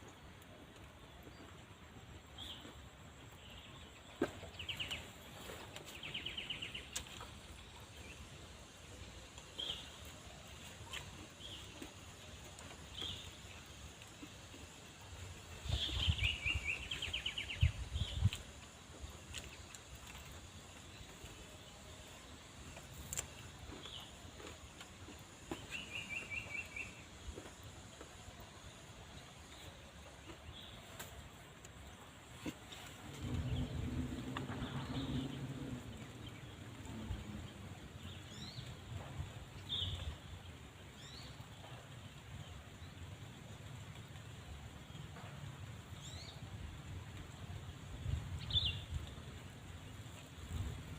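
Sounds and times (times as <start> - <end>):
bird chirping: 15.6 - 18.4, 25.1 - 27.5
low rumble: 32.9 - 40.2.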